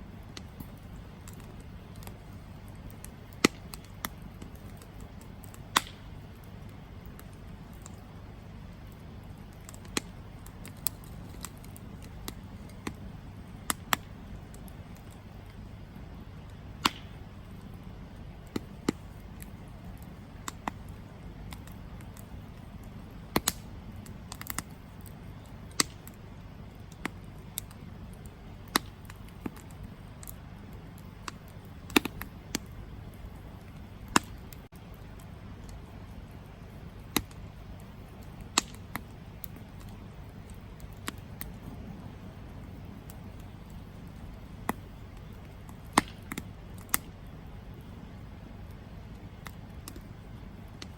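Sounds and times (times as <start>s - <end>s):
burning wood crackling and popping: 0.0s - 50.9s
low rush of flame: 0.0s - 50.9s.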